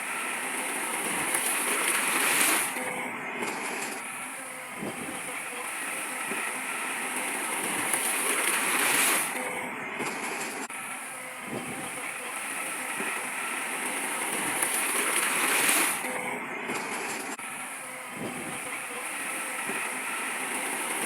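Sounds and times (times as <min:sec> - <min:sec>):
heavy machinery running: 0:00.0 - 0:21.0.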